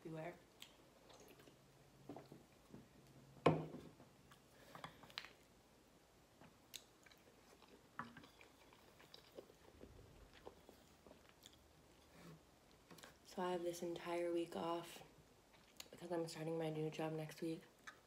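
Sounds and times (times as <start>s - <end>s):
chewing with wet clicks: 0.5s - 1.7s, 6.4s - 12.0s, 15.5s - 16.0s, 17.7s - 18.0s.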